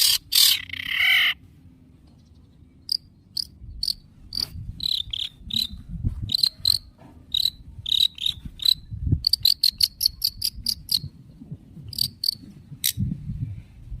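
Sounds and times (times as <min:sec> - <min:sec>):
bird giving harsh high calls: 0:00.0 - 0:01.4.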